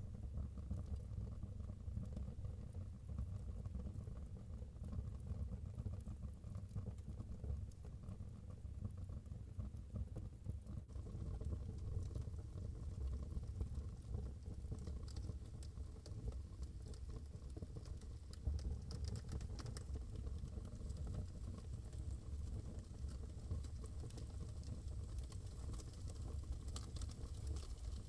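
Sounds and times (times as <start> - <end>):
wood fire crackling and popping: 11.0 - 28.0.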